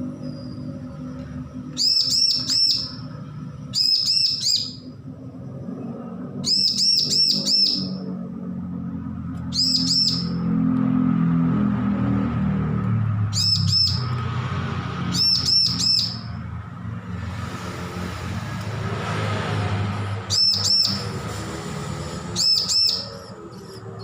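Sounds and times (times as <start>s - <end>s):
young bird chirping: 1.7s - 3.1s, 3.7s - 4.9s, 6.4s - 8.1s, 9.4s - 10.5s, 13.3s - 14.2s, 15.1s - 16.3s, 20.3s - 21.1s, 22.4s - 23.8s.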